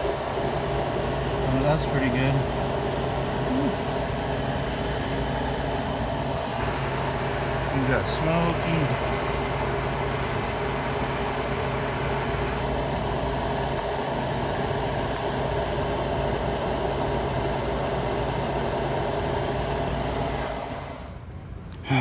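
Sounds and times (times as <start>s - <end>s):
electrical machinery humming: 0.0s - 22.0s.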